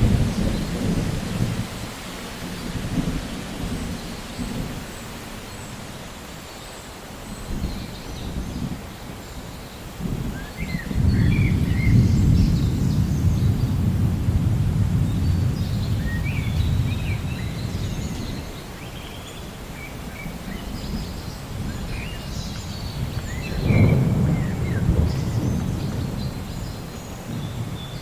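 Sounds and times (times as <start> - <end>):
low rolling thunder: 0.0 - 5.0, 7.5 - 18.8, 19.4 - 28.0
birds chirping: 15.0 - 28.0.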